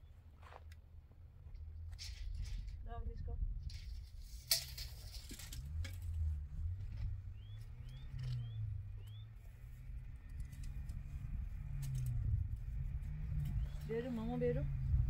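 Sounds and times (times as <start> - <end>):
low hum shifting pitch: 5.6 - 15.0
bird chirping: 7.2 - 10.5, 13.4 - 14.4.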